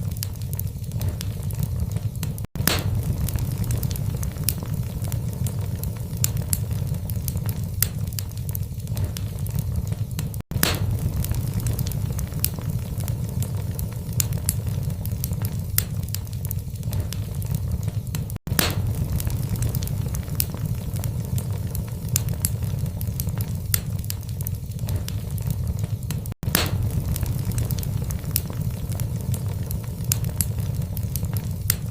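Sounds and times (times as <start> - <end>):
logs crackling and popping: 0.0 - 31.9
low rumble of flames: 0.0 - 31.9.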